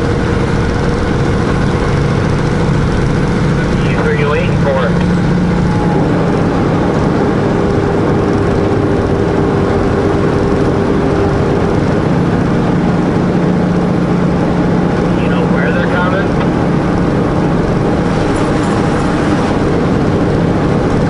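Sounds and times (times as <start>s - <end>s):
road noise: 0.0s - 21.0s
truck diesel engine running: 0.0s - 21.0s.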